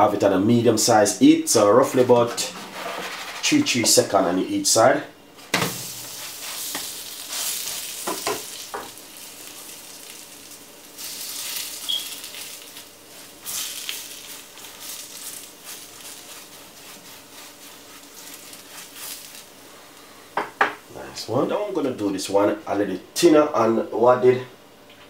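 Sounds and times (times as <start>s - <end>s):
flatbread sizzling in a frying pan: 5.6s - 20.0s
pastry brush swishing: 15.3s - 19.4s.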